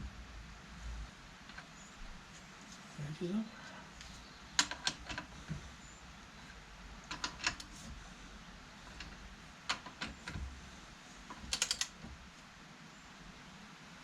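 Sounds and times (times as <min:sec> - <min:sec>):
ratchet spanner clicking: 0:11.4 - 0:12.0.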